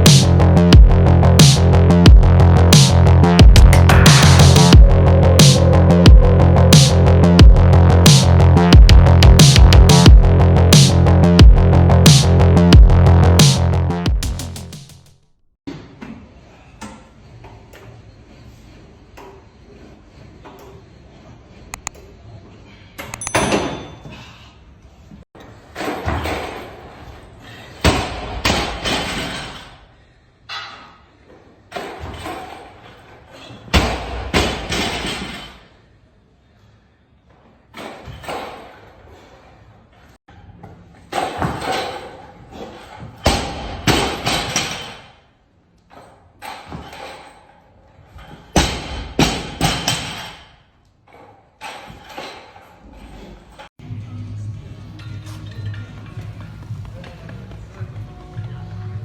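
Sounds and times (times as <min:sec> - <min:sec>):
heavy thuds and slams: 0:43.1 - 0:45.0, 0:48.5 - 0:50.5.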